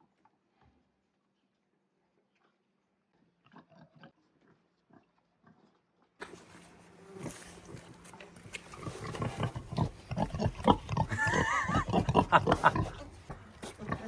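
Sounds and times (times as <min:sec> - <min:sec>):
pig chewing and smacking: 0:03.2 - 0:14.0.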